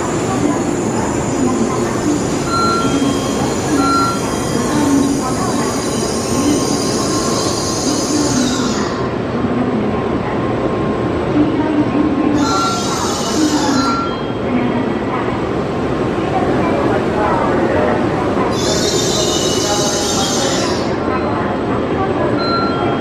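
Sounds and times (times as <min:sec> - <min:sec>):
short beeps: 0:02.5 - 0:04.4, 0:22.4 - 0:23.0.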